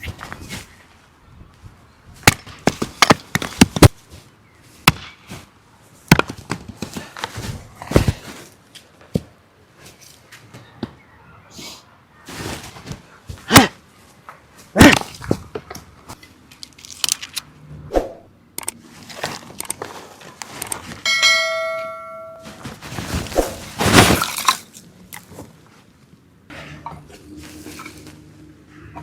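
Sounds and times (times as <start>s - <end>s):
metallic clang: 21.1s - 22.7s.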